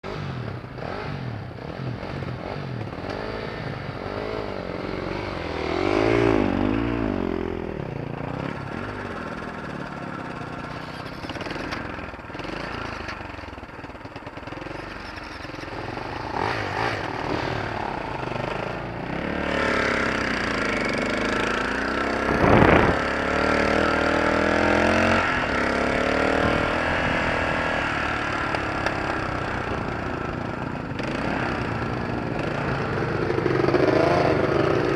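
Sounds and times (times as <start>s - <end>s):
vehicle engine revving: 15.7s - 34.9s.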